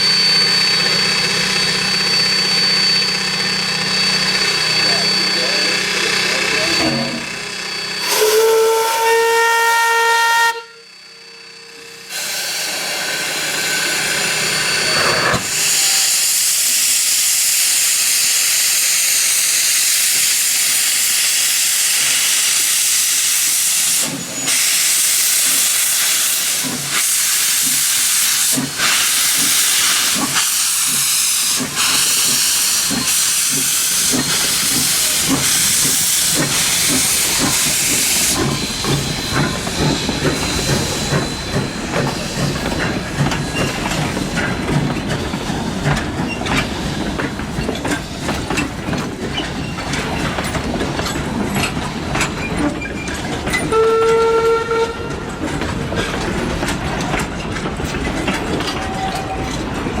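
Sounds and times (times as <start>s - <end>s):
steam locomotive exhaust beats: 0.0s - 60.0s
steam hissing: 0.3s - 9.0s, 11.1s - 51.3s
steam whistle blast: 8.0s - 13.0s, 53.7s - 55.2s
train wheels clattering on rails: 12.1s - 60.0s.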